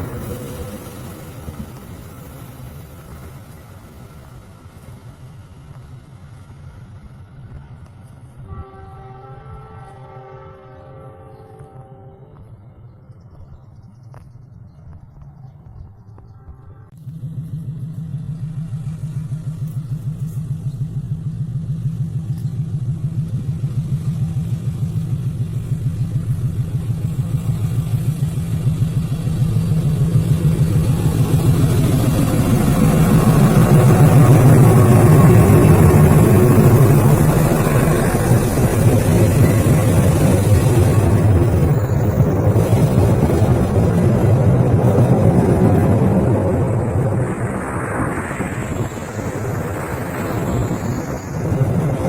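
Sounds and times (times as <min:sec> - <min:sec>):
locomotive engine throbbing: 0:00.0 - 0:52.0
rising rush of noise: 0:17.0 - 0:52.0.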